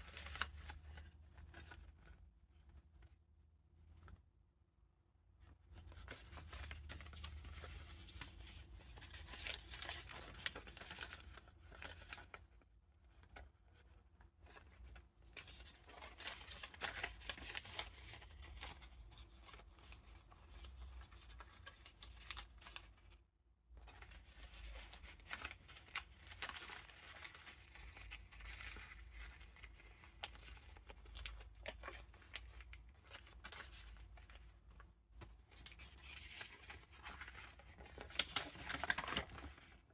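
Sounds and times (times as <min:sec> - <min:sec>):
paper pages rustling and crinkling: 0:00.0 - 0:03.2, 0:05.5 - 0:23.2, 0:23.8 - 0:39.9
small crisp paper clicks: 0:23.8 - 0:39.8.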